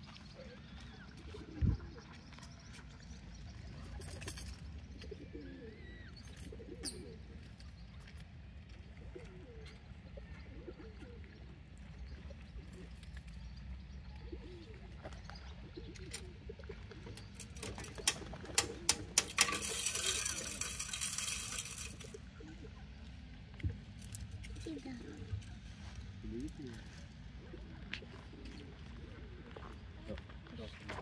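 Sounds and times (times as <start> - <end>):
faint high bird chirp: 0.0 - 8.3
soft low bird calls: 0.0 - 18.9.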